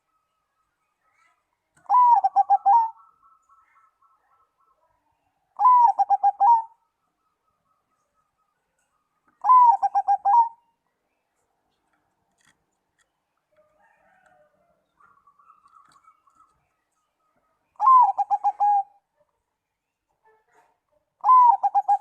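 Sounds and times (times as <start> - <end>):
dove cooing: 1.8 - 3.4, 5.6 - 6.8, 9.4 - 10.6, 17.8 - 19.0, 21.2 - 22.0.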